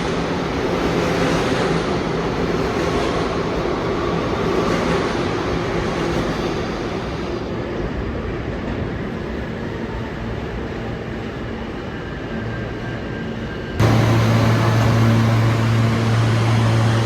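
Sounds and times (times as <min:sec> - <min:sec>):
subway train rail rumble: 0:00.0 - 0:17.0
motor hum tones: 0:13.8 - 0:17.0.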